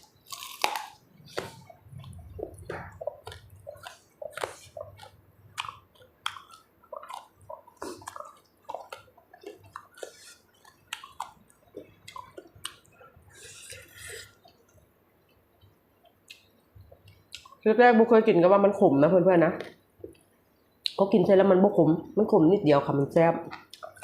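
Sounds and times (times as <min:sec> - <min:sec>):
person chewing: 0:00.0 - 0:17.6, 0:23.5 - 0:24.0.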